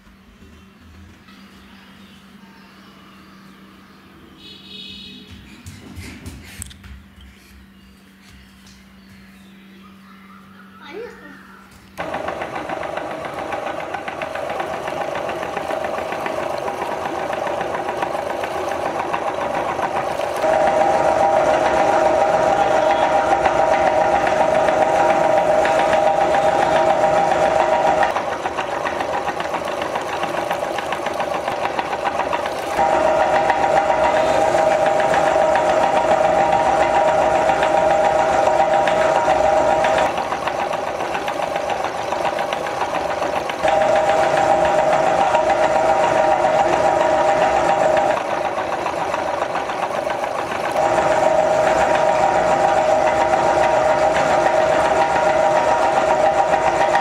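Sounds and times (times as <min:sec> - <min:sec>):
meat grinder motor whining: 0:12.0 - 0:57.0.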